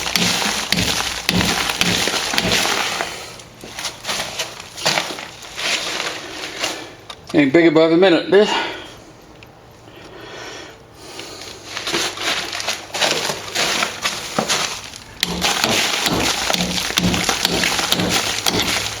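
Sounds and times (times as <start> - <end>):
plaster scraping and chipping: 0.0 - 6.6, 11.8 - 19.0
small knocks and crumbling: 0.0 - 7.3, 11.6 - 19.0.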